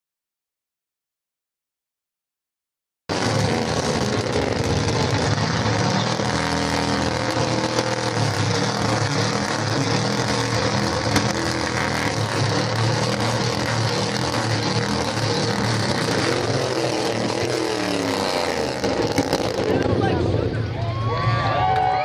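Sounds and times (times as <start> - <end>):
engine revving hard: 3.1 - 20.2.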